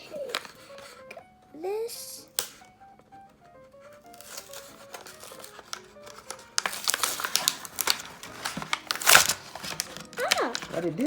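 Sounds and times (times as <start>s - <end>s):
plastic packaging crinkling: 0.0s - 1.1s, 3.9s - 11.0s
light background music: 0.0s - 11.0s.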